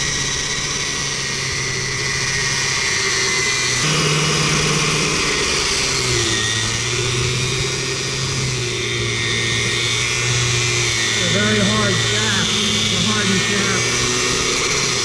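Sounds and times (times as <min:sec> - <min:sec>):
angle grinder cutting steel: 0:03.8 - 0:15.0.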